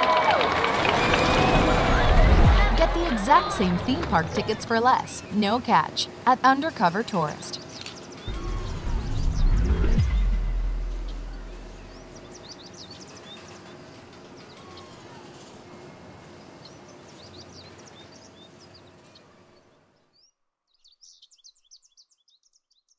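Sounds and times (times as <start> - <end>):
deep rumble: 0.6 - 4.5, 8.3 - 12.5
birds chirping: 0.9 - 22.9
outdoor background hiss: 3.3 - 8.3, 10.3 - 20.1.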